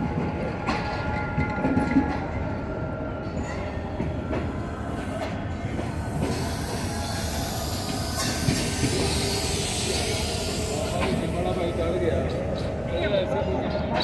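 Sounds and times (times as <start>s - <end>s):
train wheels rumbling on rails: 0.0s - 14.0s
wheel squeal: 6.1s - 12.7s.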